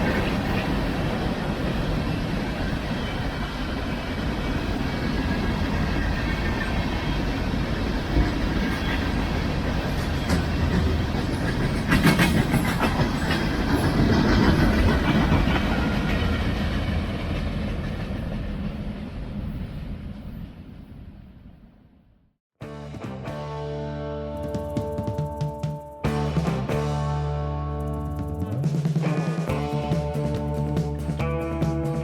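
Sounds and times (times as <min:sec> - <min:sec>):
train cars rumbling past: 0:00.0 - 0:21.7
wheels clicking over rail joints: 0:08.0 - 0:18.5.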